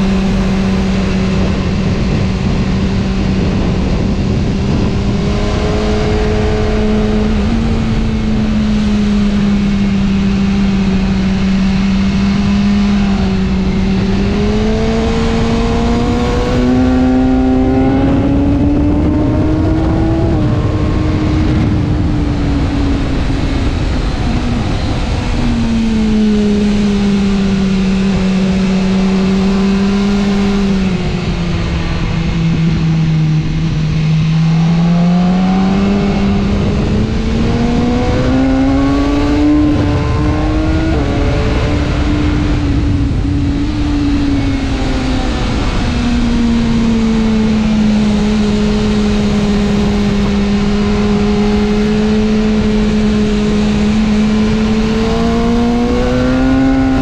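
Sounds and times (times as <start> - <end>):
motorcycle engine at speed: 0.0 - 57.0
wind rush: 0.0 - 57.0.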